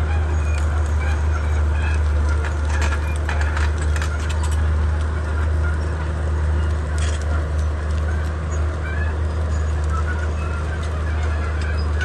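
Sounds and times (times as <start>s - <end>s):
bulldozer diesel engine droning: 0.0s - 12.0s.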